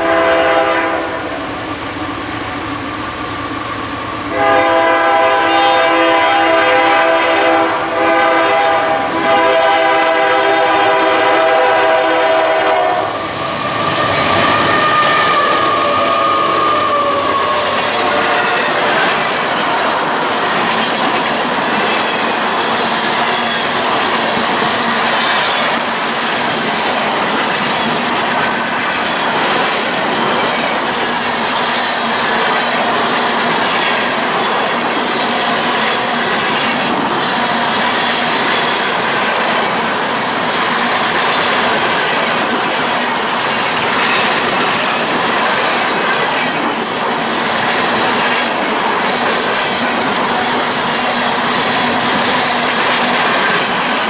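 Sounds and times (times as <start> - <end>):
train wheels clacking on rails: 0.0 - 54.0
wheel squeal: 13.2 - 19.7.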